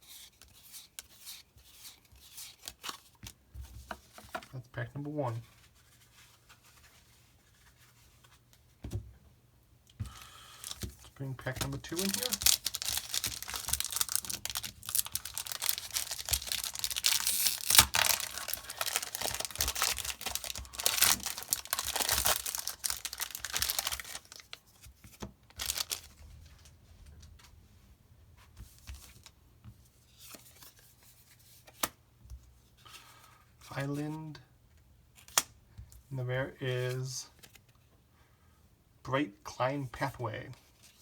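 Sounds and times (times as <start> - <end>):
foil wrapper tearing and crinkling: 11.6 - 24.6, 25.5 - 26.1.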